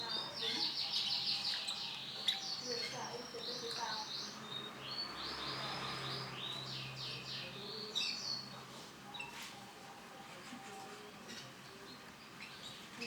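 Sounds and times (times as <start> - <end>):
canary singing: 0.0 - 8.5.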